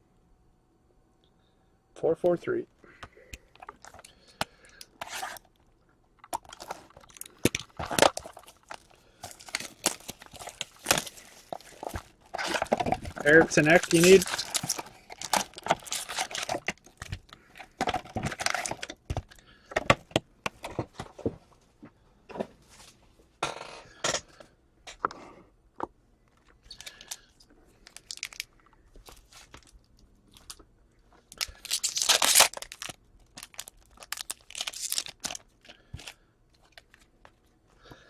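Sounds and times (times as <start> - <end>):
cards rustling and clicking: 3.4 - 5.5, 6.2 - 21.1, 26.4 - 30.6, 31.2 - 37.4
wrappers tearing and crinkling: 3.6 - 5.6, 6.3 - 19.0, 27.8 - 30.6, 31.3 - 37.1.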